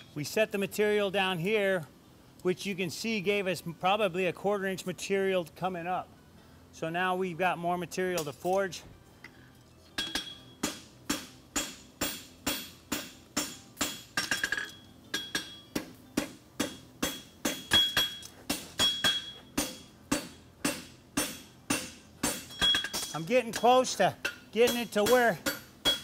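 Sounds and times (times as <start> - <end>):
hammer striking metal on anvil: 10.0 - 26.0.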